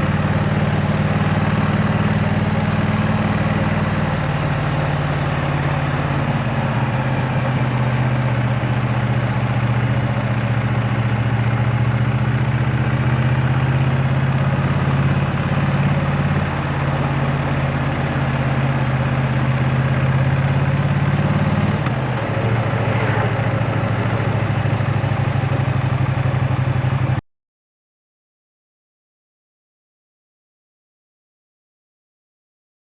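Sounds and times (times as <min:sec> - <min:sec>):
motorcycle engine idling: 0:00.0 - 0:27.2.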